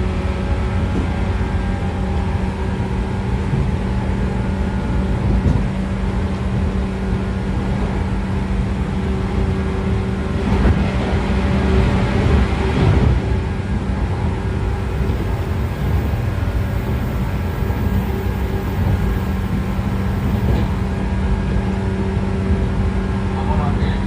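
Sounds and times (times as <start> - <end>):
train traction motor whine: 13.3 - 23.1.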